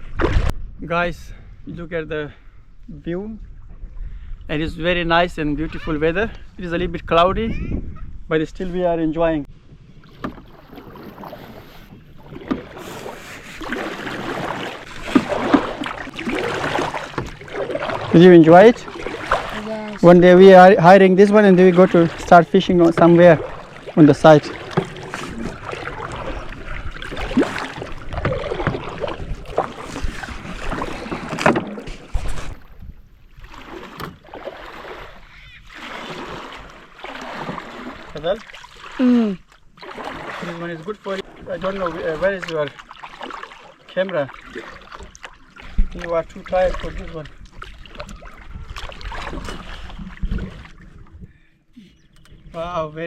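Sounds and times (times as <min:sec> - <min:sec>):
paddle strokes splashing: 0:09.9 - 0:51.2
sharp splashes: 0:10.0 - 0:32.8, 0:33.4 - 0:50.8.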